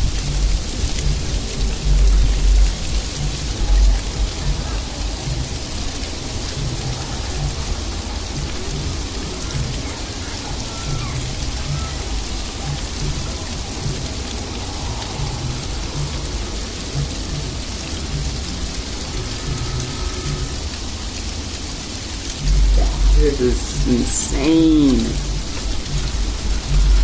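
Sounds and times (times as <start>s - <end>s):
heavy low rumbles: 22.4s - 23.9s.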